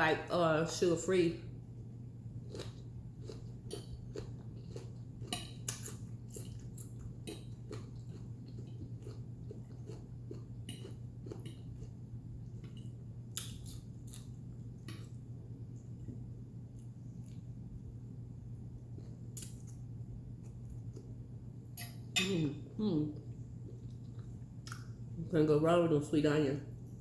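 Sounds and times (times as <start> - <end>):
faint low hum: 0.0 - 27.0
person chewing food: 2.3 - 17.9, 18.5 - 21.2, 21.8 - 24.9.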